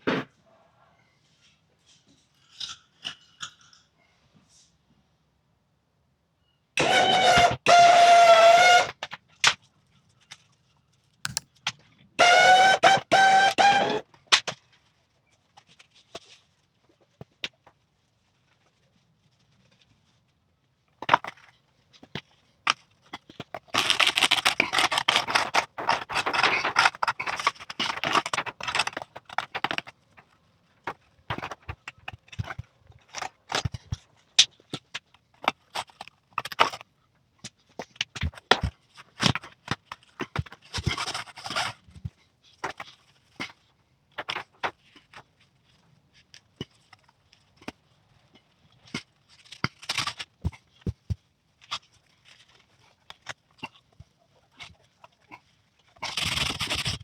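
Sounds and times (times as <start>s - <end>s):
scraping and rustling: 23.1s - 34.3s.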